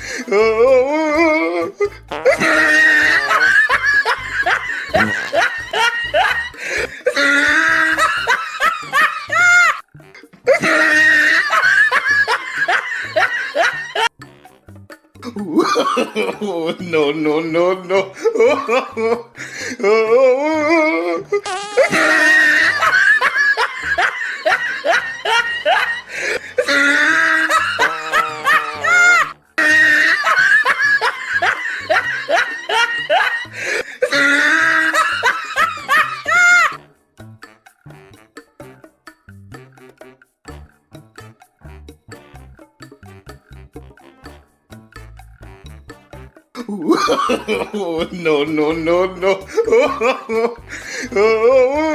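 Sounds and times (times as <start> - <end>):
person laughing: 0.0 - 14.1, 15.2 - 36.7, 46.6 - 51.9.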